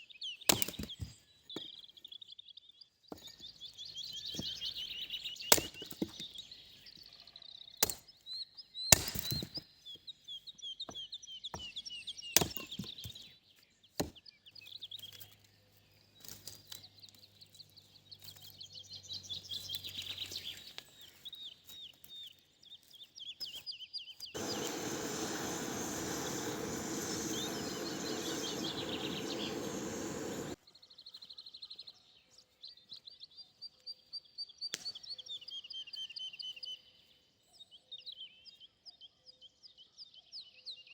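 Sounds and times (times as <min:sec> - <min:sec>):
songbirds chirping and singing: 0:00.0 - 0:33.6
steady rushing noise: 0:24.4 - 0:30.6.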